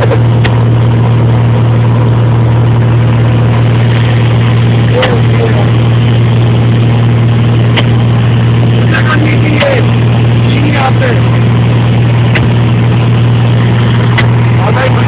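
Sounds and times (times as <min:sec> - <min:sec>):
propeller plane engine drone: 0:00.0 - 0:15.0.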